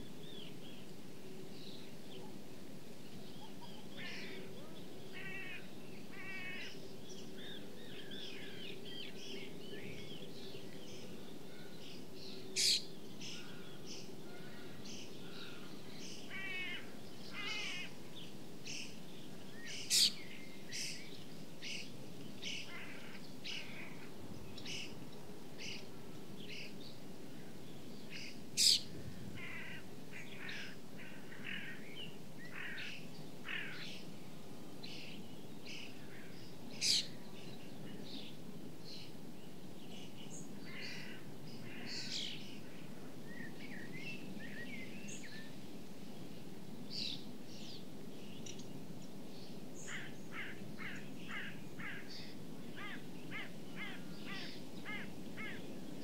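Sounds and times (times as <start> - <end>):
sharp bird calls: 12.5 - 13.6, 19.6 - 20.2.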